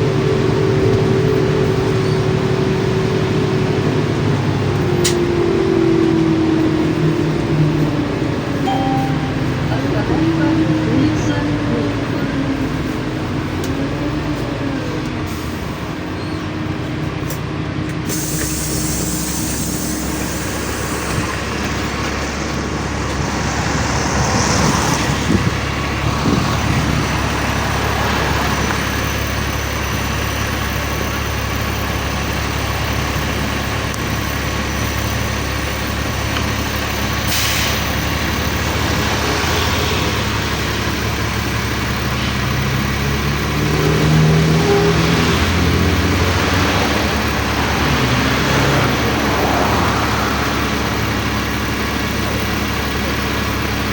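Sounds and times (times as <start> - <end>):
bus engine drone: 0.0 - 53.9
road noise: 0.0 - 53.9
compressed air hissing: 18.1 - 21.2.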